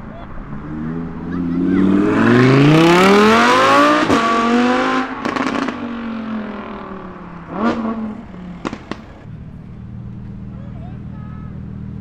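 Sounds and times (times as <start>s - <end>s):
car engine revving: 0.1s - 12.0s
sharp exhaust cracks: 8.5s - 9.3s.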